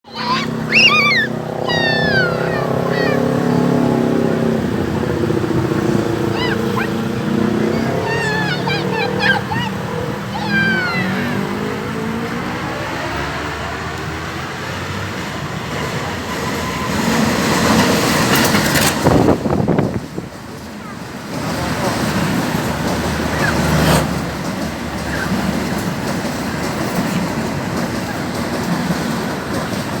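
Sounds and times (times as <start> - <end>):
train wheels rumbling on rails: 0.0 - 30.0
diesel locomotive engine drone: 0.1 - 30.0
short high chirping calls: 0.2 - 3.2, 6.2 - 7.1, 7.7 - 11.2.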